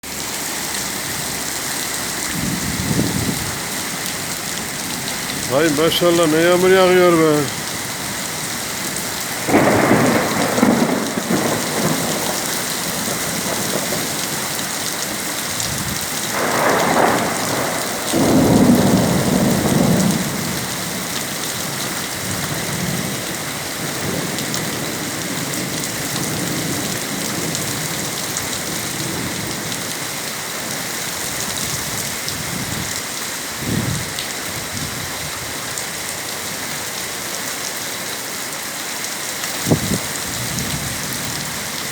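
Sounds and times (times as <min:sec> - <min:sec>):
heavy rain pouring: 0:00.0 - 0:41.9
rolling thunder: 0:02.3 - 0:03.9, 0:09.2 - 0:21.2.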